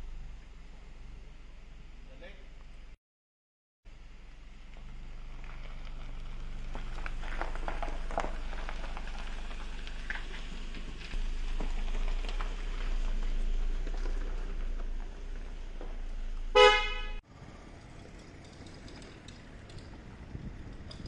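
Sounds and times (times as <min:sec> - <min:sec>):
car engine idling: 0:03.9 - 0:21.0.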